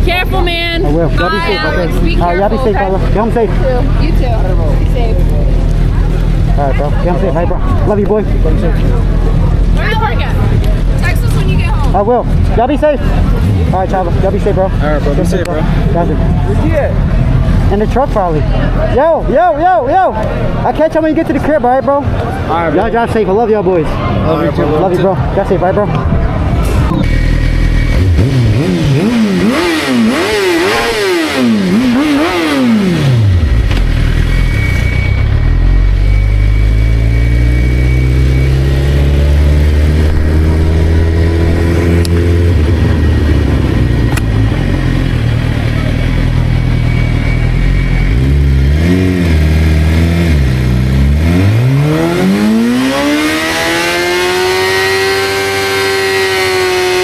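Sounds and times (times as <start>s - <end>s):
motorcycle engine revving: 26.6s - 57.0s.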